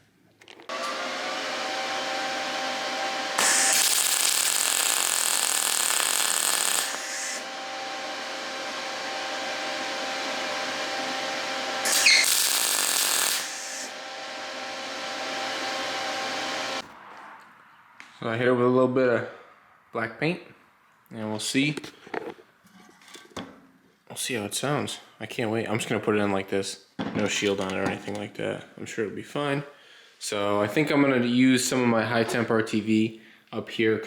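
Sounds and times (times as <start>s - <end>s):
welder humming: 0.7s - 16.8s
arc welding sizzle: 3.2s - 7.5s, 11.8s - 13.9s.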